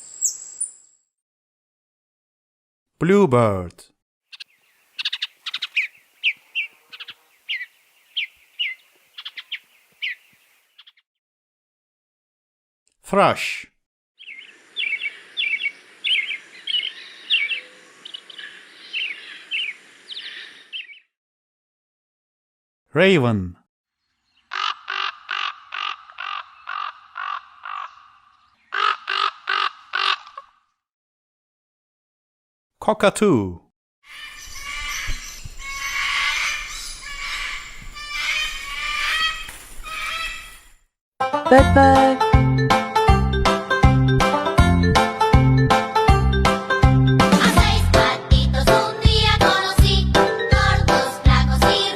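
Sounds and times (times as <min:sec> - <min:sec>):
bird calling: 0:04.3 - 0:11.0, 0:14.2 - 0:21.1, 0:24.3 - 0:30.6, 0:34.1 - 0:40.8
raven cawing: 0:24.4 - 0:30.7, 0:34.1 - 0:40.8.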